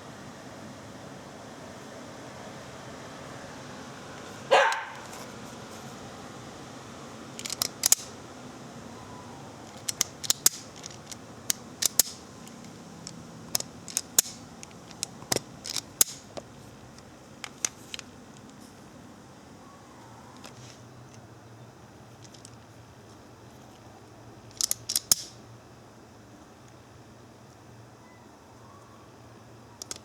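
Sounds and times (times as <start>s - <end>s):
wire stripper clicking and snipping: 7.4s - 8.2s, 9.7s - 16.4s, 24.5s - 25.4s.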